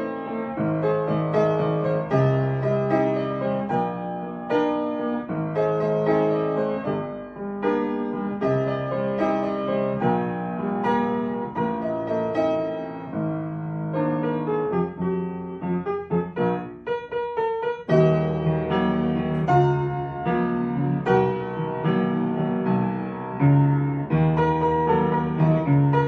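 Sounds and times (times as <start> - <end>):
sustained piano chords: 0.0 - 26.0.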